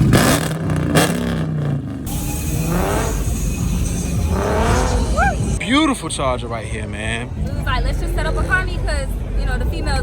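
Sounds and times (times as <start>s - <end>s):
car engine revving: 0.0s - 5.6s.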